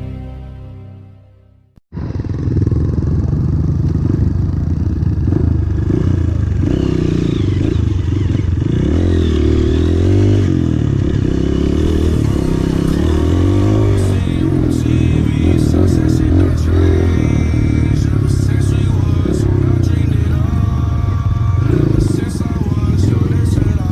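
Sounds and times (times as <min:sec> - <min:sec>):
music: 0:00.0 - 0:01.8, 0:11.4 - 0:23.9
motorcycle engines revving: 0:01.9 - 0:23.9.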